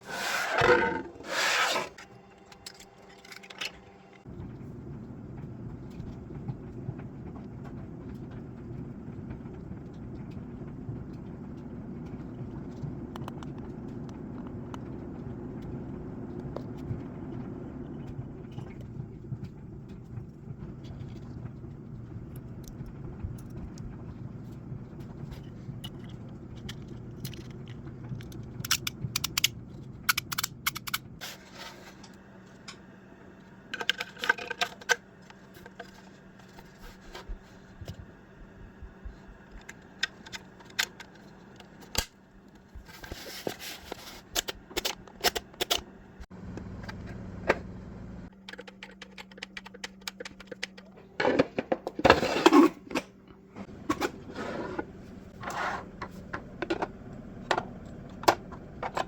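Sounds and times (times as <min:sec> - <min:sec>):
low mechanical hum: 0:00.0 - 0:59.0
clicks and rattles of hard objects: 0:01.8 - 0:04.2, 0:25.0 - 0:31.2, 0:33.7 - 0:38.0, 0:39.2 - 0:45.9, 0:48.3 - 0:59.0.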